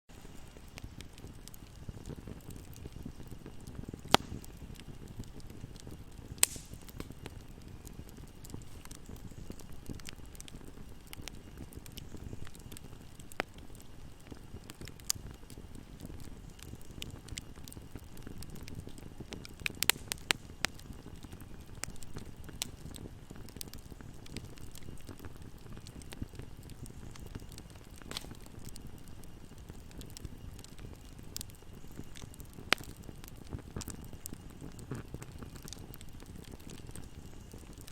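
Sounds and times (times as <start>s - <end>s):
fire crackling: 0.1s - 37.9s
low rumble of flames: 0.1s - 37.9s
loud sharp fire pops: 0.7s - 10.4s, 19.4s - 20.8s, 25.9s - 28.8s
loud sharp pops: 6.4s - 7.1s.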